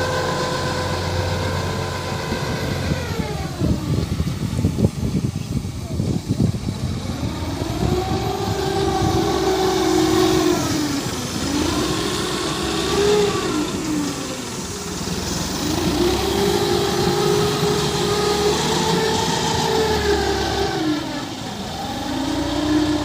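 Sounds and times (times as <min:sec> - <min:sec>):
backhoe diesel engine revving: 0:00.0 - 0:23.0.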